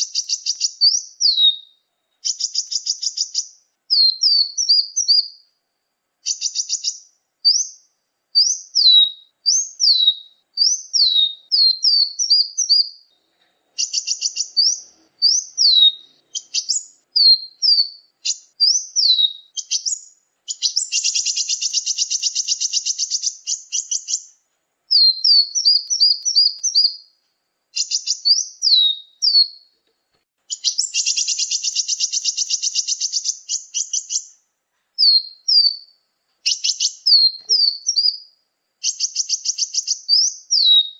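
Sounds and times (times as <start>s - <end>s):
songbird down-slurred chirps: 0.0s - 40.9s
buzzy bird trills: 13.8s - 27.1s, 30.5s - 34.3s.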